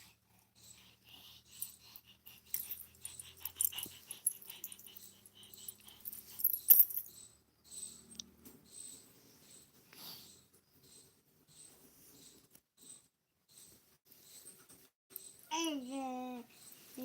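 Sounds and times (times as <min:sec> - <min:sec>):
dog making scratchy breathy noises: 0:00.0 - 0:06.5.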